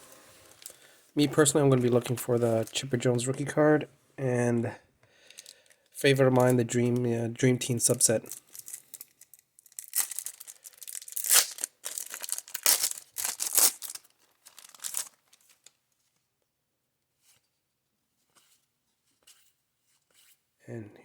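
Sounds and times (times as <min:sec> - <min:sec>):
wrapper rustling and crinkling: 0:00.1 - 0:00.9, 0:01.7 - 0:02.9, 0:07.9 - 0:16.2
card pack wrapper tearing: 0:07.9 - 0:15.7.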